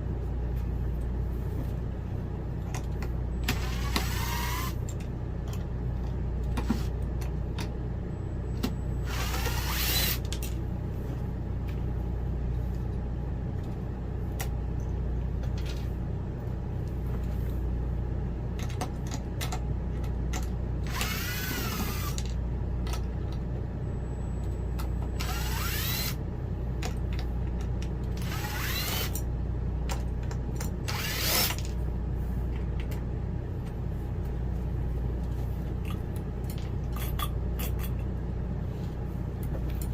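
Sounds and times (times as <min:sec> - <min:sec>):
steady low hum: 0:00.0 - 0:39.9
cordless drill driving screws: 0:03.5 - 0:04.8, 0:09.1 - 0:10.3, 0:20.9 - 0:22.2, 0:25.2 - 0:26.2, 0:28.2 - 0:29.2, 0:30.9 - 0:31.6.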